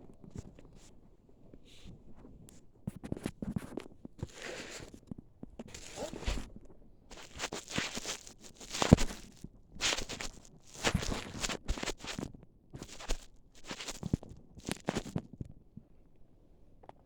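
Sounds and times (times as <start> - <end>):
packaging rustling and crinkling: 5.7 - 6.5, 7.1 - 15.3.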